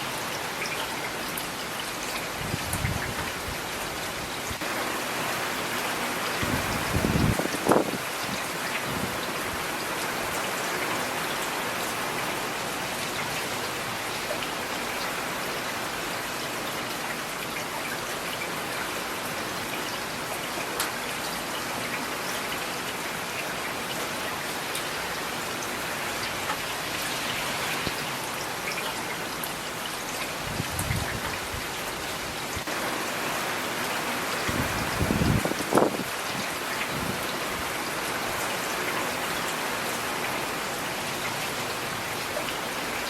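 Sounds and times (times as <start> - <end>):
steady rain falling: 0.0 - 43.0
raindrops ticking on a surface: 5.7 - 32.8.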